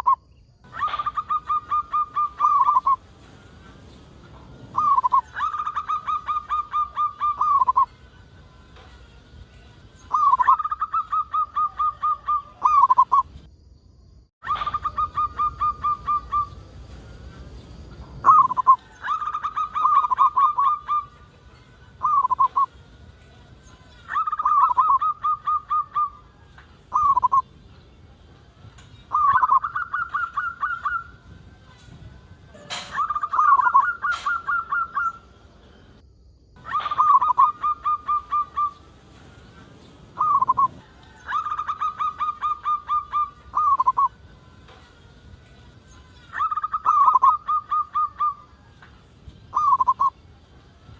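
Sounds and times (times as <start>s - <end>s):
dove cooing: 0.0s - 3.0s, 4.7s - 7.9s, 10.1s - 13.2s, 14.4s - 16.7s, 18.2s - 21.2s, 22.0s - 22.7s, 24.1s - 26.2s, 29.1s - 31.2s, 32.6s - 35.2s, 36.6s - 38.8s, 40.1s - 44.2s, 46.3s - 48.5s, 49.5s - 50.1s.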